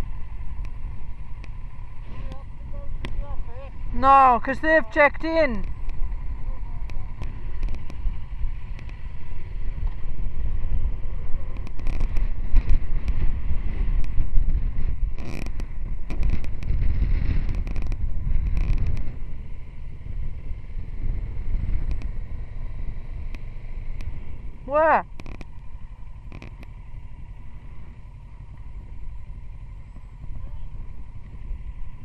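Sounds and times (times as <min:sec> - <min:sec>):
wind buffeting microphone: 0:05.4 - 0:32.0
light clicks and rustles: 0:11.5 - 0:13.3, 0:15.1 - 0:19.2.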